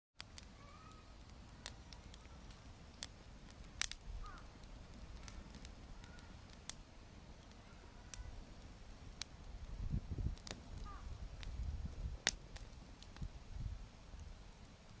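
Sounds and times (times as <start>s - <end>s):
wood fire crackling: 0.2s - 15.0s
faint bird calls: 0.6s - 1.1s, 4.2s - 4.6s, 5.2s - 6.5s, 10.8s - 11.2s.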